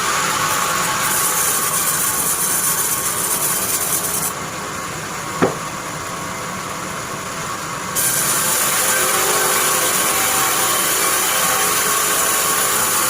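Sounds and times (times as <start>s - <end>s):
sawmill machinery running: 0.0s - 13.0s
sharp knock: 5.4s - 5.7s.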